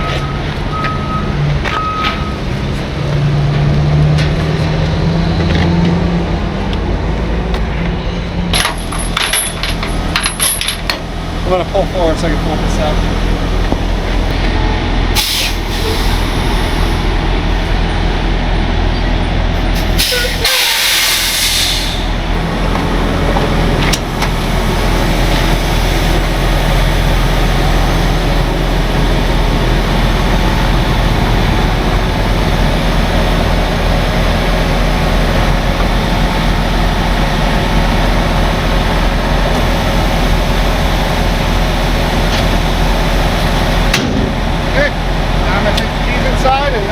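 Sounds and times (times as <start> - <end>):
truck diesel engine running: 0.0 - 46.9
air brakes hissing: 15.2 - 17.0, 19.6 - 22.2.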